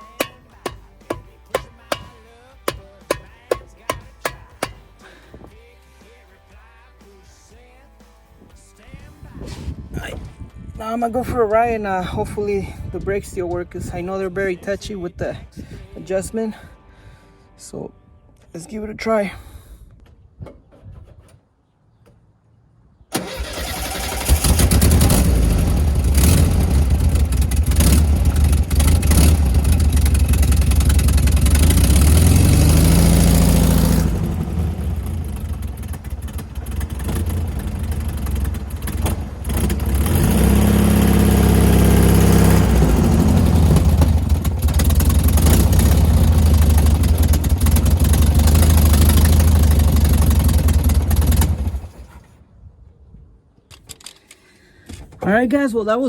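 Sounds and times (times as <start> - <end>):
car engine starting and running: 0.0 - 5.0, 23.1 - 52.3.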